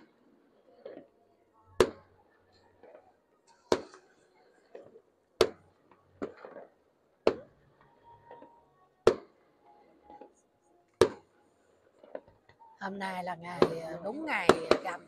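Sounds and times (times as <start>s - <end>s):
fireworks pops and crackles: 1.8s - 2.2s, 2.8s - 9.4s, 10.9s - 11.3s, 13.6s - 15.0s
fireworks bangs: 2.8s - 7.5s, 13.6s - 15.0s.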